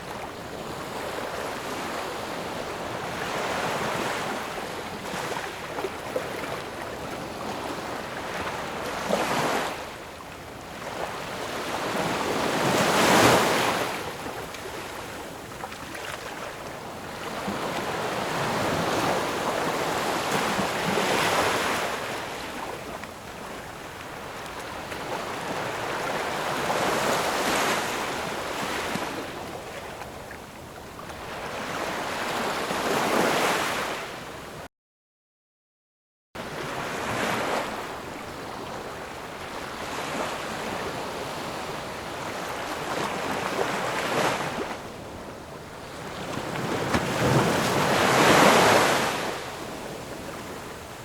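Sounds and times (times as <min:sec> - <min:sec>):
ocean waves breaking: 0:45.8 - 0:50.5.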